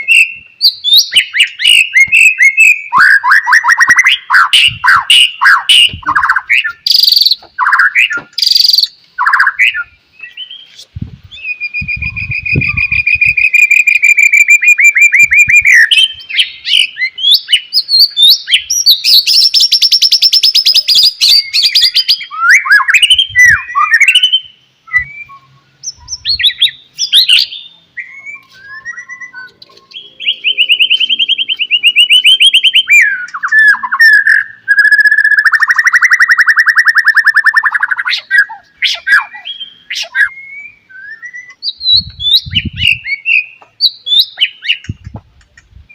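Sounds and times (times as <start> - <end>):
bird singing whistled phrases: 0.0 - 45.1
fast bird trills: 25.9 - 40.3.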